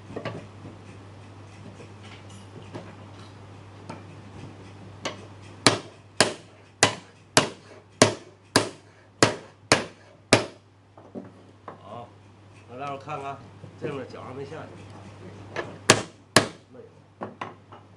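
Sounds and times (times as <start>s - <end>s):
hammer striking wood: 5.6s - 10.6s, 15.9s - 16.6s.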